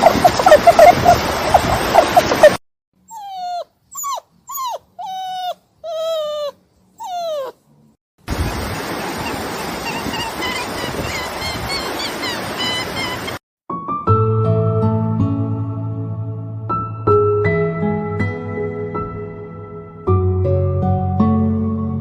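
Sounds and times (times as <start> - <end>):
puppy whimpering: 1.9 - 7.7, 9.8 - 13.4.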